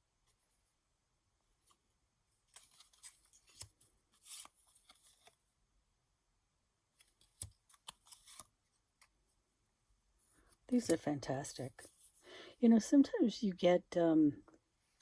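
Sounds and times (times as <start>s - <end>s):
card paper rustling: 2.4s - 5.4s, 7.0s - 8.6s.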